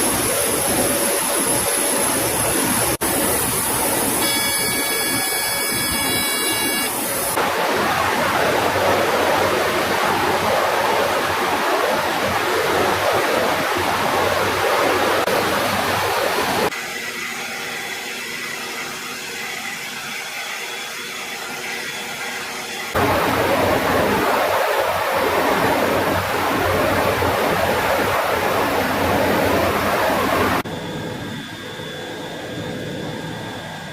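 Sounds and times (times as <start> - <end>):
jet engine roar: 0.0 - 33.9
faint steady tones: 3.4 - 7.4.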